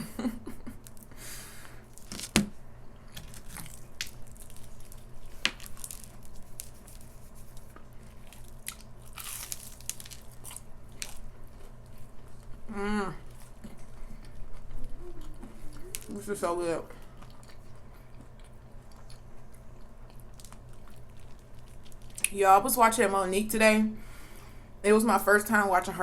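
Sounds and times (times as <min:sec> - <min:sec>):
crunchy bites and chewing: 0:01.8 - 0:12.6, 0:17.0 - 0:22.3.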